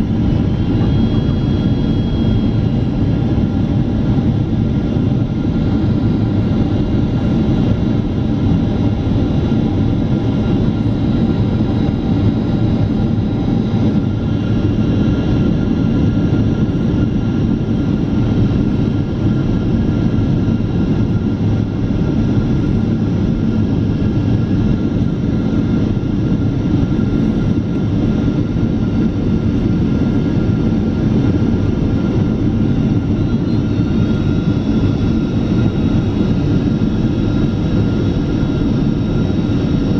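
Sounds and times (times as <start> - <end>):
airliner cabin engine rush: 0.0 - 39.9.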